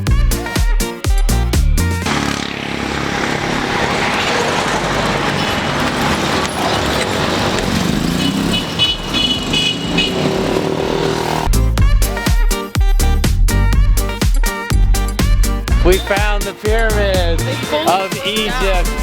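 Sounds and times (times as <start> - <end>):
dance music: 0.0 - 4.0, 11.4 - 19.0
vehicle engines: 2.0 - 11.5.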